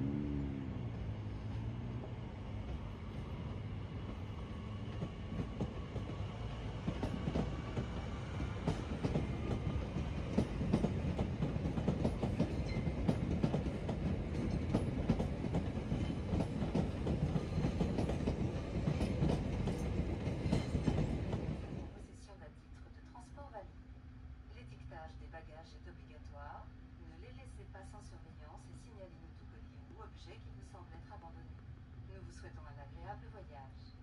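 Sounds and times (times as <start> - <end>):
steady low train rumble: 0.0 - 34.0
train wheels clattering: 4.8 - 21.7.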